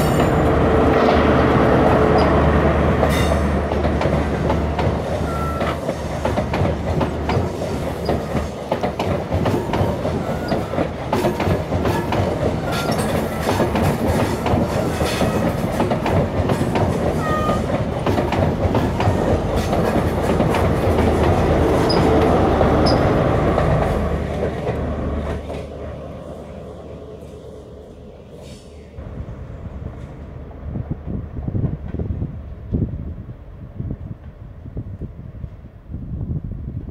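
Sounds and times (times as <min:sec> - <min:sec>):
train wheels clattering over joints: 0:03.0 - 0:25.8
wheel squeals: 0:05.2 - 0:05.8, 0:22.8 - 0:23.2.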